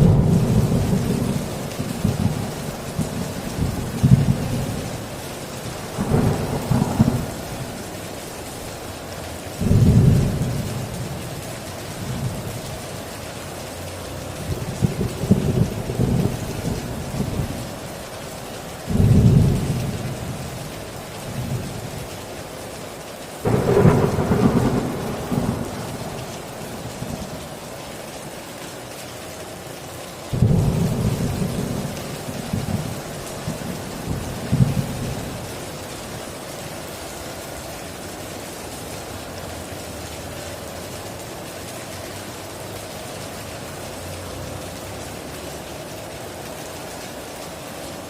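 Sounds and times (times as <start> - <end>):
heavy rain on a tin roof: 0.0 - 48.0
thunder rolling: 5.9 - 7.8, 23.5 - 27.6, 30.3 - 35.4.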